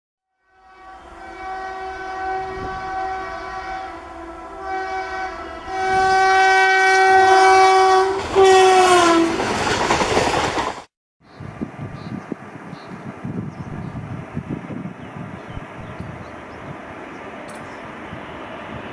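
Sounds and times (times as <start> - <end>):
locomotive air horn blasts: 0.4 - 9.4
wind: 0.4 - 18.9.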